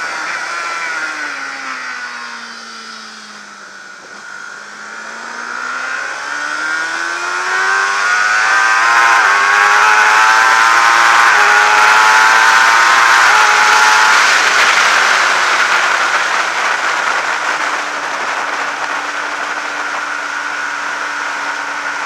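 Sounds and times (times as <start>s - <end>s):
motorcycle engine revving: 0.0s - 22.0s
wind rush: 11.4s - 20.6s.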